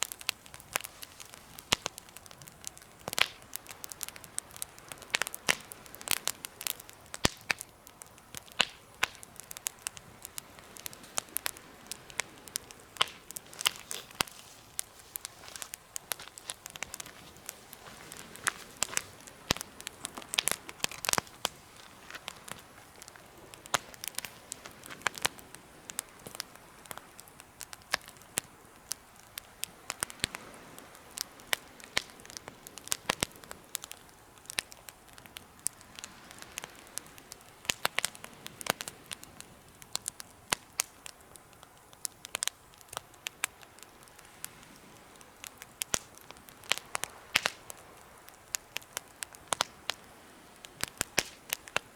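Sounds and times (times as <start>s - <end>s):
faint steady hiss: 0.0s - 51.9s
wood fire crackling: 0.0s - 51.9s.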